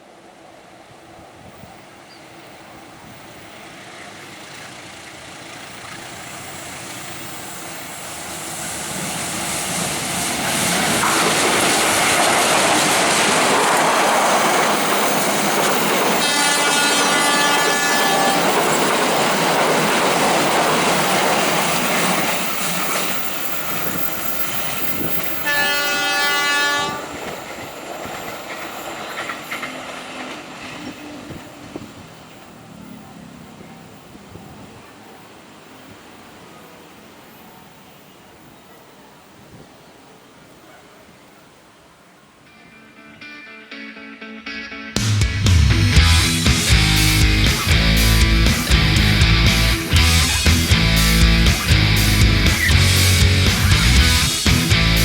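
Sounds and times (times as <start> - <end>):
train passing: 0.0 - 55.0
train horn blasts: 16.1 - 18.7, 25.4 - 27.4.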